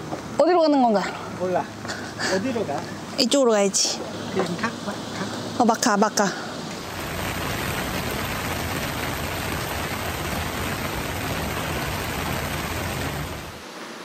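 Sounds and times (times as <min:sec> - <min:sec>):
heavy rain pouring: 0:06.5 - 0:14.0.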